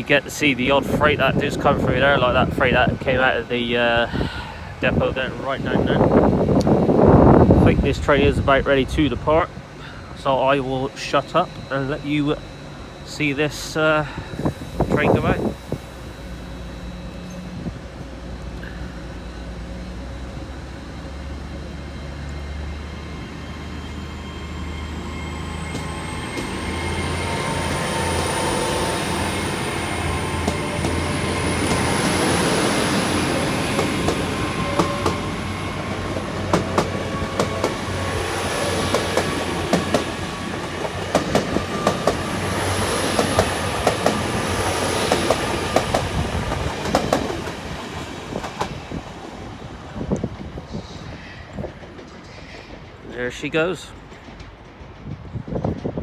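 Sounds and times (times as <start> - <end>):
train engine hum and whine: 0.0 - 56.0
train wheels clicking over rail joints: 25.6 - 56.0.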